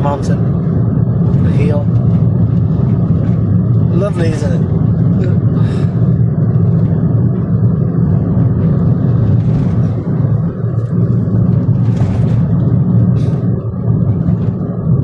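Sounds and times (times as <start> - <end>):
car engine and road drone: 0.0 - 15.0.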